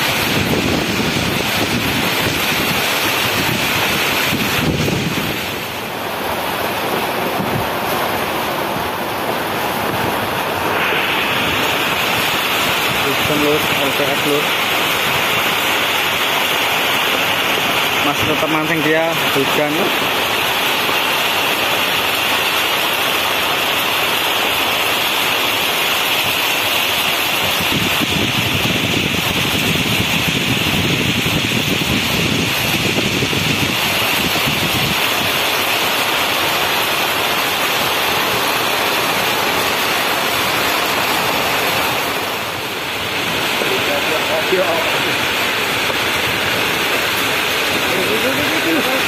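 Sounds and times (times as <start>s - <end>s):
wind buffeting the microphone: 0.0s - 18.4s, 27.3s - 35.6s
heavy rain pouring: 0.0s - 49.0s.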